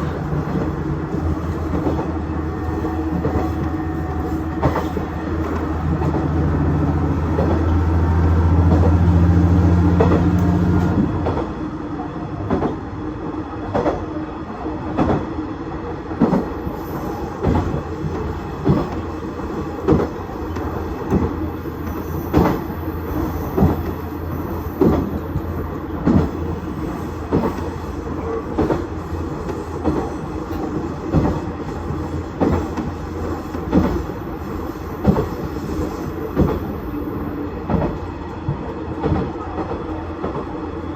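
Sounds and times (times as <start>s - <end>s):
train wheels clicking over rail joints: 7.2s - 11.5s, 16.2s - 36.8s.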